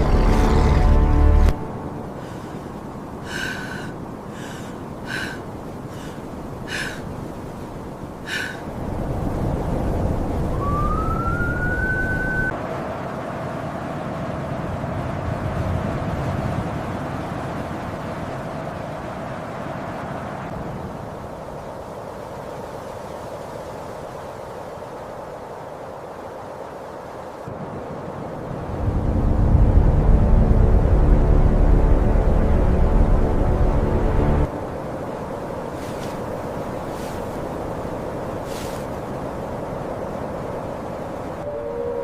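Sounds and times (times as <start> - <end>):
blizzard wind blowing: 0.0 - 42.0
wolf howling: 41.4 - 42.0.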